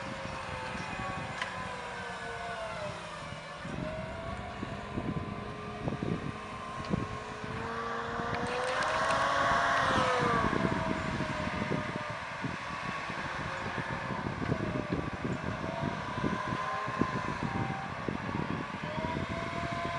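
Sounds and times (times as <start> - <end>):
tractor diesel engine under load: 0.0 - 19.9
wind buffeting microphone: 0.0 - 19.9.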